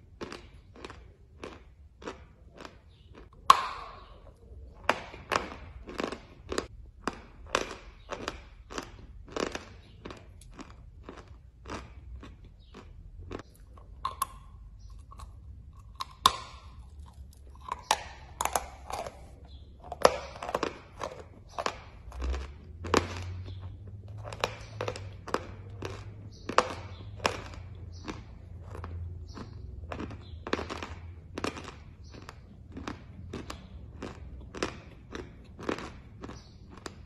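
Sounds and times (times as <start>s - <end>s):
crunching chalk: 0.0s - 37.0s.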